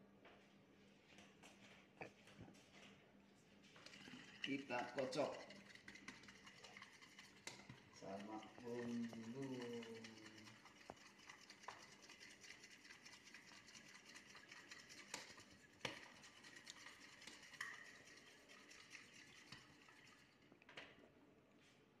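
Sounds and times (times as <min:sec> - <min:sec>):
eggs beaten in a bowl: 0:03.8 - 0:20.3.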